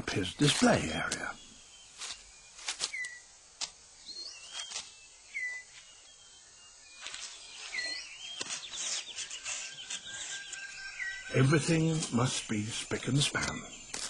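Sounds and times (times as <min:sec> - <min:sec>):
leaf litter snapping and rustling: 0:00.4 - 0:01.3, 0:02.0 - 0:03.8, 0:04.5 - 0:05.0
birds whistling: 0:00.4 - 0:14.0.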